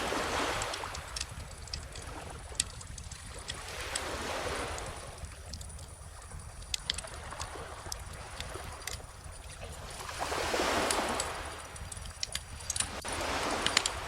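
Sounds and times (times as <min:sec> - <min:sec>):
surf rumble: 0:00.0 - 0:14.0.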